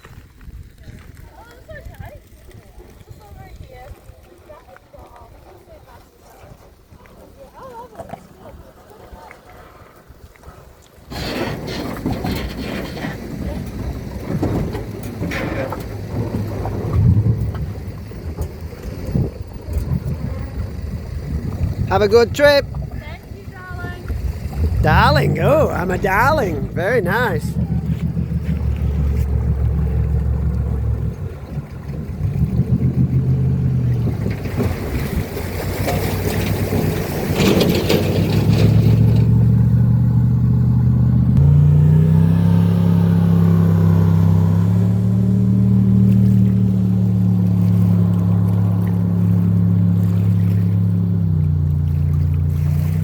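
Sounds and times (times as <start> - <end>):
motor engine running: 27.5 - 34.2.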